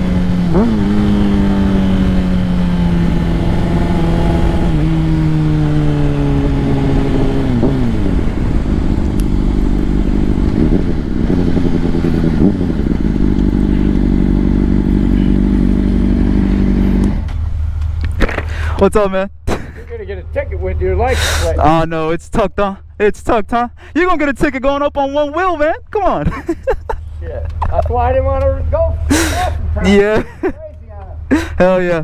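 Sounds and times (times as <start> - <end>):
motorcycle engine while riding: 0.0 - 18.5
motorcycle throttle blips: 0.0 - 18.5, 27.4 - 29.8.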